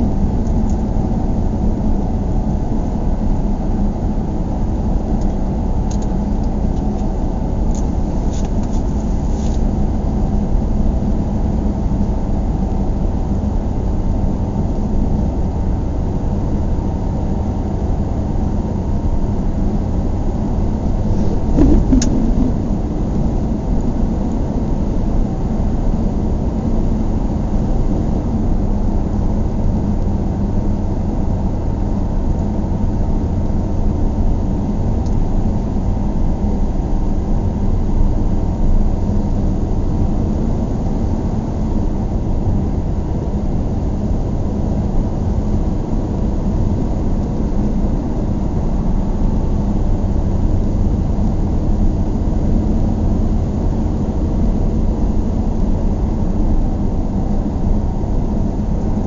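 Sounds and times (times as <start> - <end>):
moving vehicle rumble: 5.6 - 9.8, 20.6 - 25.4.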